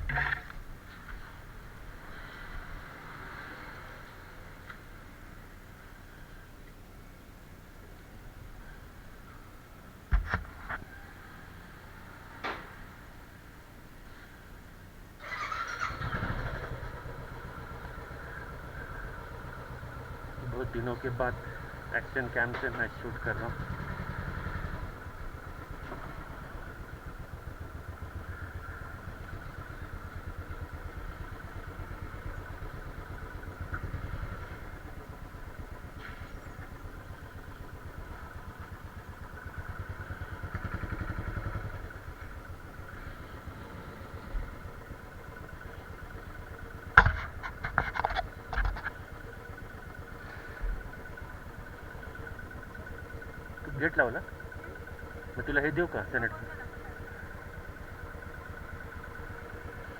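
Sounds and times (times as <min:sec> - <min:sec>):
motorcycle engine idling: 0:00.0 - 0:59.9
sharp metallic clanks and knocks: 0:46.9 - 0:49.0.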